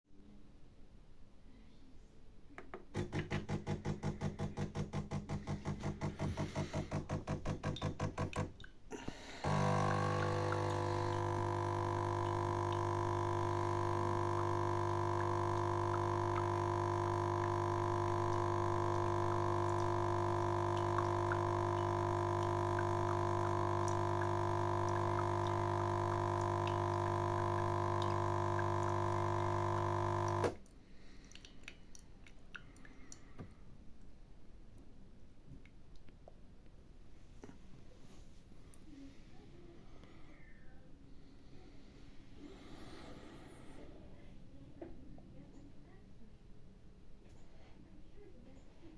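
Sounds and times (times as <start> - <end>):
espresso machine pump humming: 3.0 - 8.4, 9.4 - 30.6.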